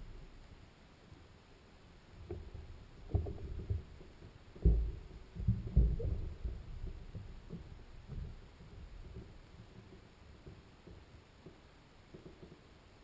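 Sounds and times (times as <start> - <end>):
dull low thumps and knocks: 2.2 - 12.6.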